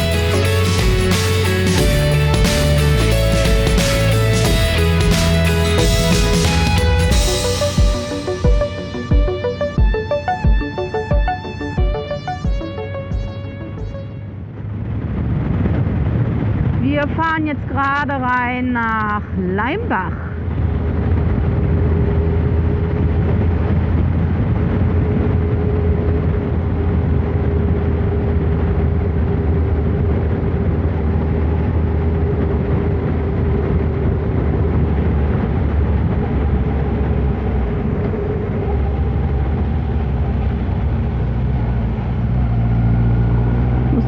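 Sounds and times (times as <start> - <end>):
motorcycle engine running: 0.0 - 12.7
wind and road noise: 14.2 - 44.0.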